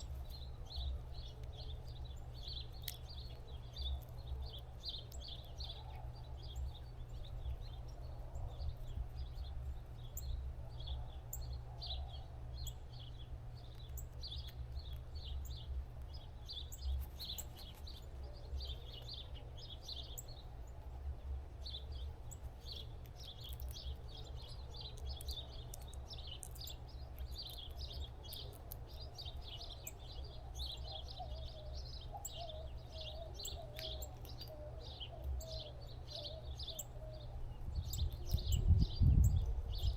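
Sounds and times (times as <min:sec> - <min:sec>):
small birds chirping: 0:00.0 - 0:39.9
steady low rumble: 0:35.2 - 0:39.9.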